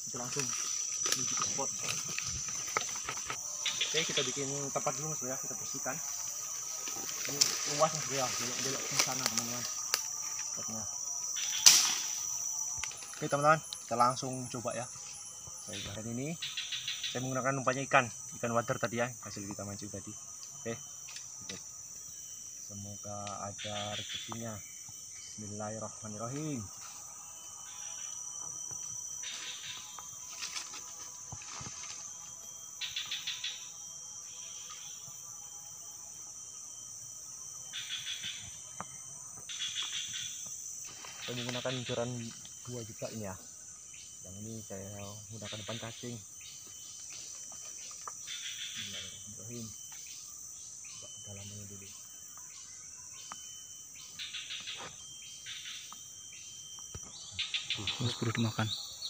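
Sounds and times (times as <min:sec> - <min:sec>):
insect pulsed chirping: 0:00.0 - 0:59.0
insects droning: 0:00.0 - 0:59.0
repeated chirping calls: 0:51.0 - 0:59.0.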